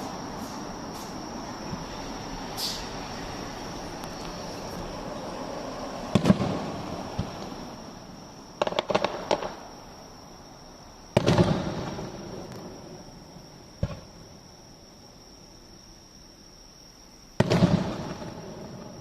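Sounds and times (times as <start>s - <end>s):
fireworks crackling pops: 0.0s - 3.1s, 3.9s - 5.1s, 6.0s - 7.8s, 8.6s - 9.7s, 11.2s - 13.0s, 13.8s - 14.3s, 17.4s - 19.0s
fireworks booming: 0.0s - 9.8s, 11.1s - 14.4s, 17.4s - 19.0s.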